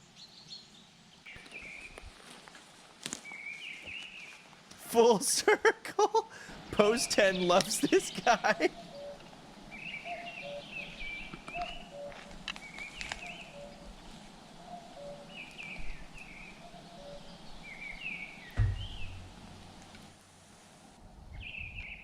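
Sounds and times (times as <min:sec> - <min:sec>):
birds chirping: 0:00.0 - 0:02.1, 0:06.2 - 0:20.1
dull thud: 0:18.6 - 0:19.8.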